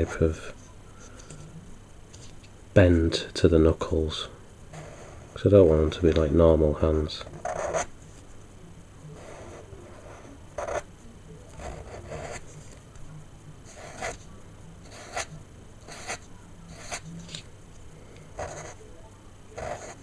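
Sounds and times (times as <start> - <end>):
marker drawing on paper: 7.4 - 7.9, 11.6 - 12.4, 13.7 - 14.2, 14.8 - 17.4, 18.4 - 18.8, 19.6 - 20.0.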